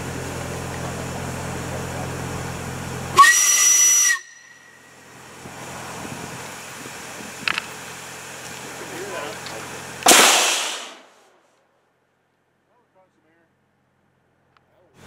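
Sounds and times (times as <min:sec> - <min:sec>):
low engine-like hum: 0:00.0 - 0:11.2, 0:11.8 - 0:15.0
hissing whistle: 0:03.1 - 0:05.2
air cannon blast: 0:10.0 - 0:11.3.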